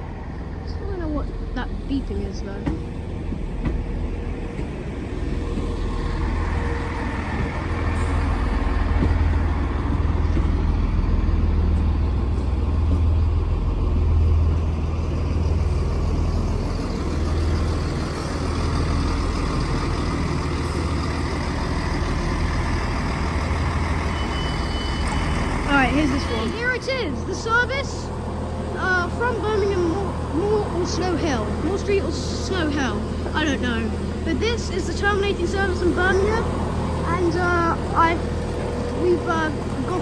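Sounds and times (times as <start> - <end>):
train diesel engines droning: 0.0 - 40.0.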